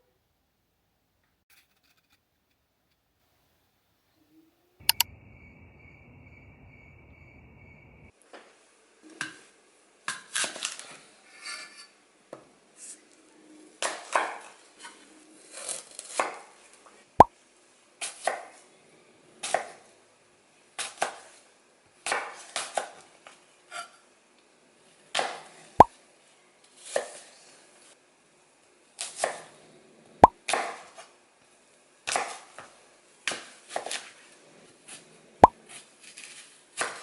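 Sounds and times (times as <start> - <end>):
sharp clicks: 4.8 - 5.1.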